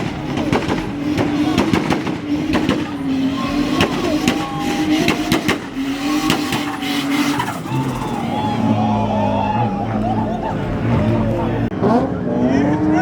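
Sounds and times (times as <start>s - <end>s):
sharp cracks: 0.0s - 8.4s
vehicle engines running: 0.0s - 13.0s.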